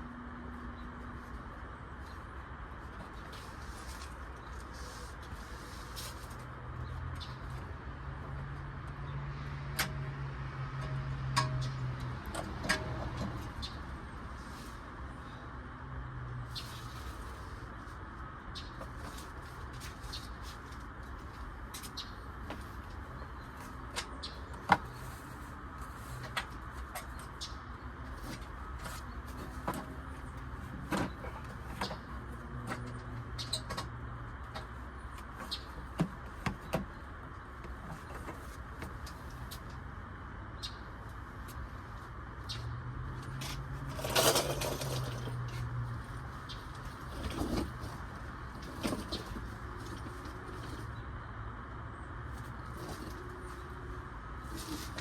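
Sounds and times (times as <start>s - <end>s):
metal tools clinking: 43.9s - 45.5s.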